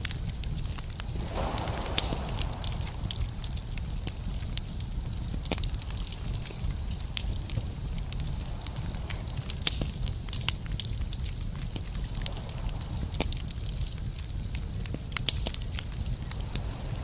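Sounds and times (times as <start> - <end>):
logs crackling and popping: 0.0 - 17.0
low rumble of flames: 0.0 - 17.0.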